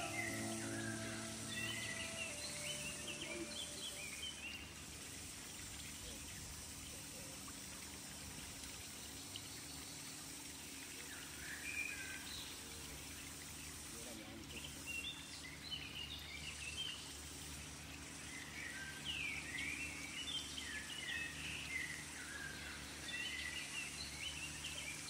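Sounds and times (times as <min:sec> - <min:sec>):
birds chirping: 0:00.0 - 0:04.8
outdoor background noise: 0:00.0 - 0:25.0.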